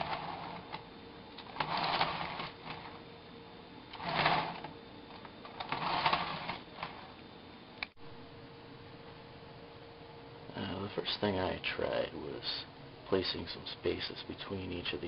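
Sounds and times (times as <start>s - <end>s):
motor rotor clattering whir: 0.0s - 3.1s, 3.9s - 7.2s.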